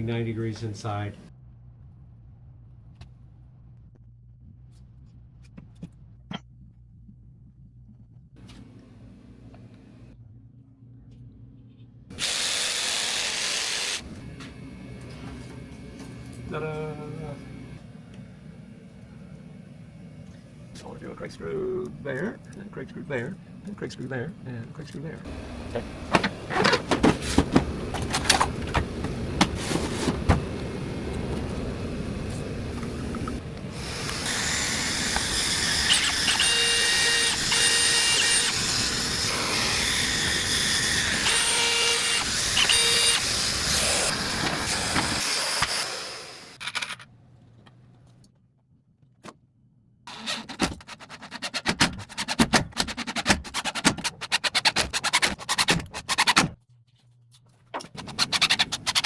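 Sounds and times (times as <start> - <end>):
power tool hiss and whine: 12.1 - 14.7, 30.4 - 46.6
rapid clicking and scraping: 50.3 - 56.6, 57.8 - 59.0.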